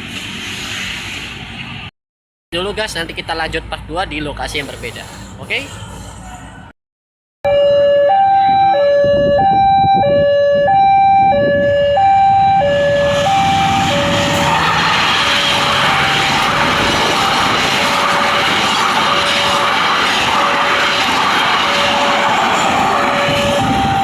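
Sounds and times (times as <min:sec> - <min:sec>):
level crossing two-tone alarm: 0:07.5 - 0:24.0
train approaching: 0:07.5 - 0:24.0.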